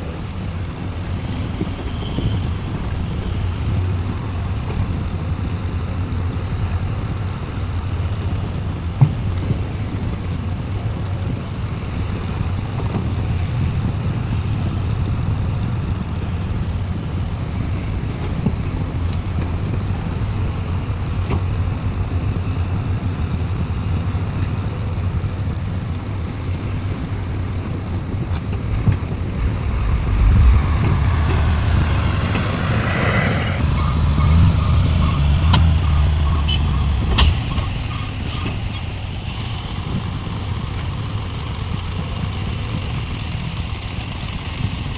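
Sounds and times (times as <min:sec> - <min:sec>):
heavy diesel machinery running: 0:00.0 - 0:44.9
hiss of air: 0:28.7 - 0:34.5.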